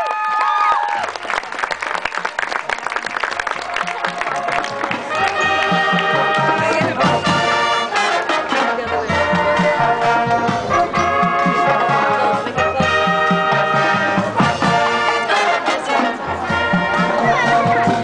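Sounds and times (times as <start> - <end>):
brass horn chords: 3.9 - 18.0
steady drum beat: 5.2 - 7.9.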